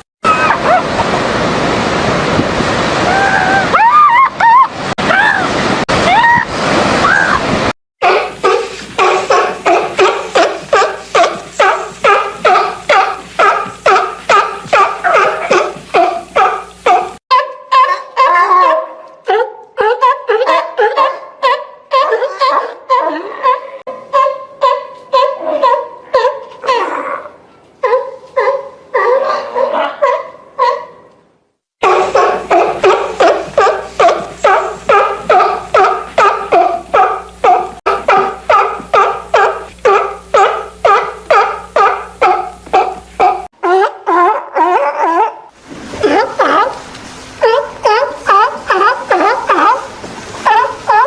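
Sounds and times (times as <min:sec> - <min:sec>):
surf: 0:00.0 - 0:17.2, 0:45.5 - 0:51.0
seal barking: 0:08.0 - 0:18.8, 0:31.8 - 0:45.4, 0:47.4 - 0:51.0.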